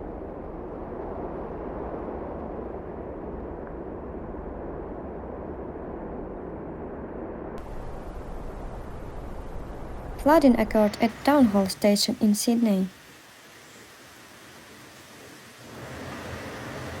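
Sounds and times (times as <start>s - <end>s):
muffled rushing noise: 0.0s - 12.0s
bright hiss: 7.6s - 17.0s.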